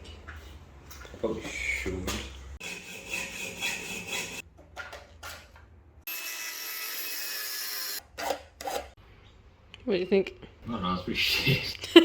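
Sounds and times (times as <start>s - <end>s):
high-pitched power tool running: 6.1s - 8.0s.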